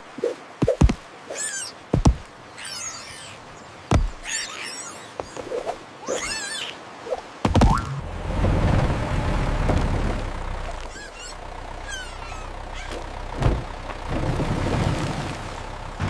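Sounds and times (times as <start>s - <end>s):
squeaky animal calls: 1.3s - 1.8s, 2.5s - 7.1s, 10.6s - 13.3s
sharp thumps: 1.9s - 2.3s, 3.9s - 4.3s, 7.4s - 8.9s.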